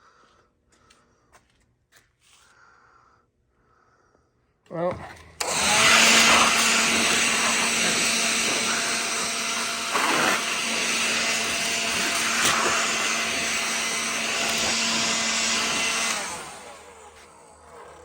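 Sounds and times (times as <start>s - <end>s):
vacuum motor humming: 4.9s - 18.0s.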